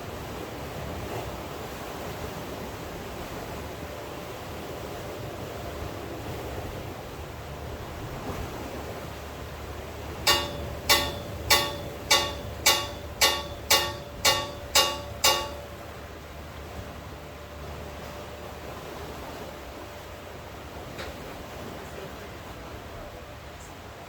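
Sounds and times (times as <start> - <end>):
sharp ringing strikes: 10.2 - 16.0.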